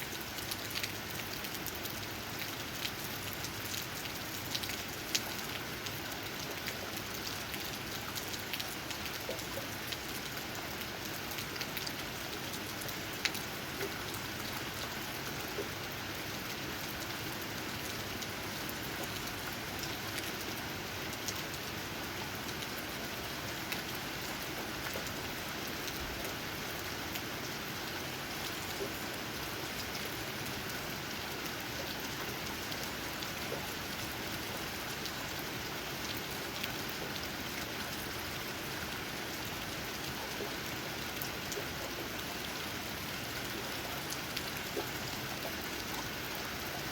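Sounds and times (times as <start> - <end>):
rain dripping on leaves: 0.0 - 46.9.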